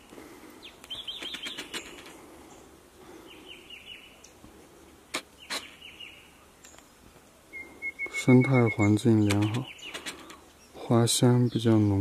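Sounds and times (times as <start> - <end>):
wild birds chirping: 0.0 - 12.0
sharp clicks: 0.8 - 2.2, 9.2 - 10.4.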